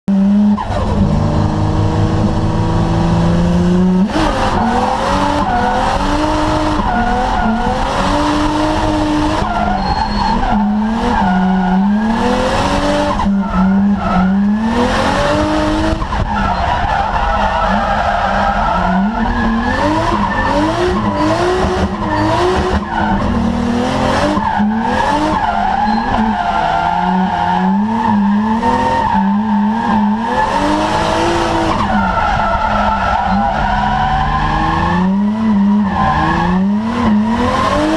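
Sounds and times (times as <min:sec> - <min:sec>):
car engine revving: 0:00.0 - 0:37.9
tyres squealing: 0:09.2 - 0:12.3.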